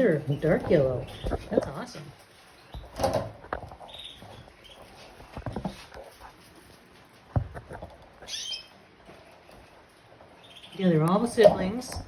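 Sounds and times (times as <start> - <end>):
canaries cheeping: 0.0 - 6.2, 8.1 - 12.0
light knocks and rustles: 0.4 - 8.4.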